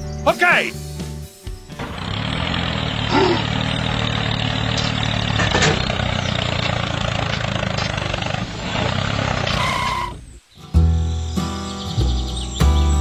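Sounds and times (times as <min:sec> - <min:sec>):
tractor engine running: 0:01.5 - 0:10.3.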